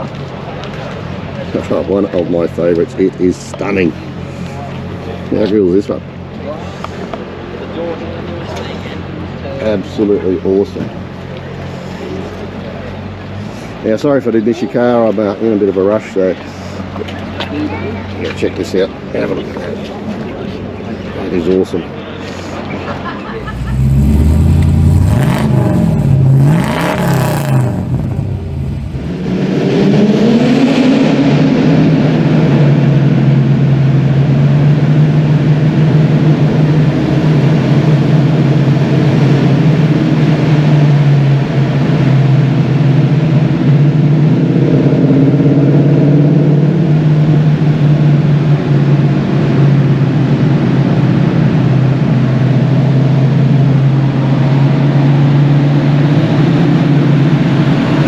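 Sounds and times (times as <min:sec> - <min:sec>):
car engines revving: 0:22.8 - 0:58.0.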